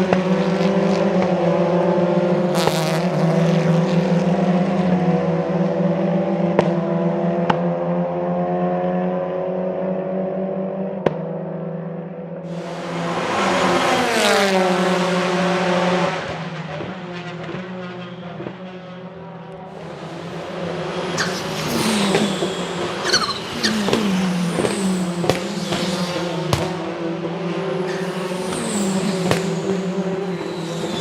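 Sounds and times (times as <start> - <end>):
car engine revving: 0.0 - 10.1, 12.5 - 31.0.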